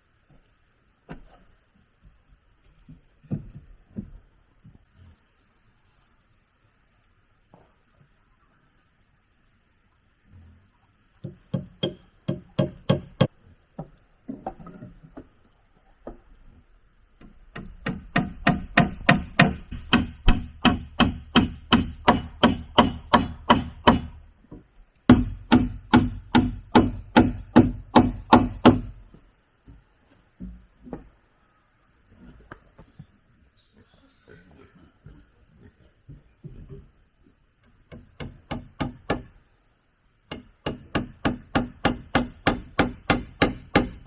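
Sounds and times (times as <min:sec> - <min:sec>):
tool striking wood: 0:11.2 - 0:13.3, 0:17.6 - 0:24.2, 0:25.1 - 0:29.0, 0:37.9 - 0:39.3, 0:40.3 - 0:44.0.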